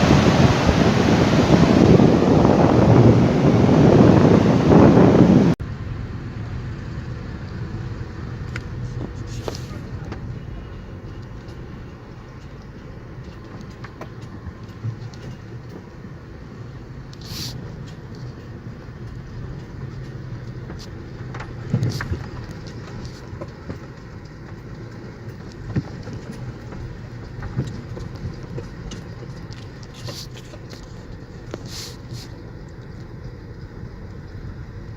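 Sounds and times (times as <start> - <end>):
wind buffeting microphone: 0.0 - 5.6
distant traffic rumble: 0.0 - 34.9
brief hiss: 17.2 - 17.6, 31.6 - 32.4.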